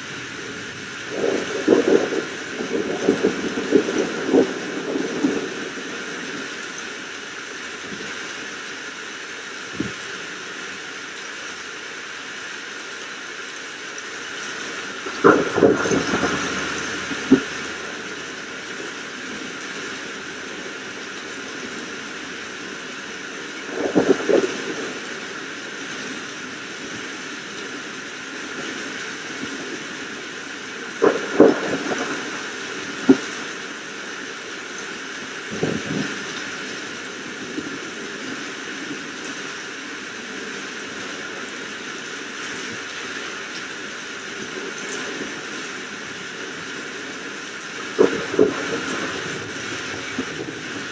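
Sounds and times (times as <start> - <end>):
steady rain hiss: 0.0 - 50.9
sharp thunder cracks: 1.0 - 5.9, 15.0 - 19.2, 31.0 - 33.4.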